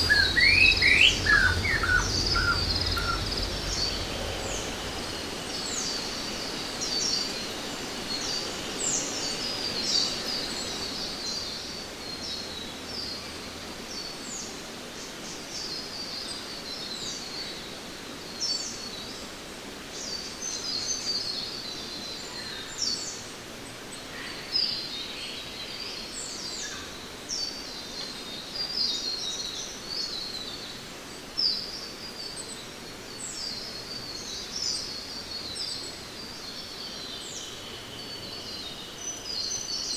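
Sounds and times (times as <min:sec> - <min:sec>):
birds chirping: 0:00.0 - 0:06.4.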